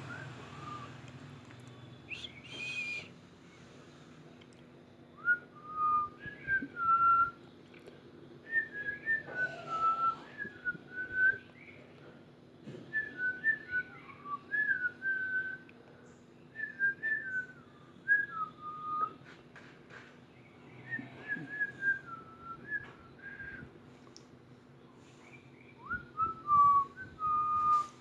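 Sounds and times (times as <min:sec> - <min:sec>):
person whistling a melody: 0:02.1 - 0:03.1, 0:25.8 - 0:28.0.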